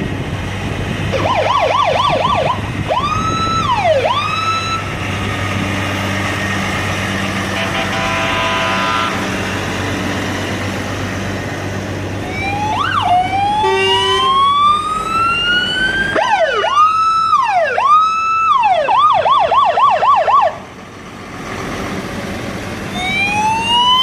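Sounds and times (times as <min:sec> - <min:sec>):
truck engine running: 0:00.0 - 0:24.0
electronic siren wailing and yelping: 0:01.1 - 0:04.9, 0:12.2 - 0:20.6, 0:22.9 - 0:24.0.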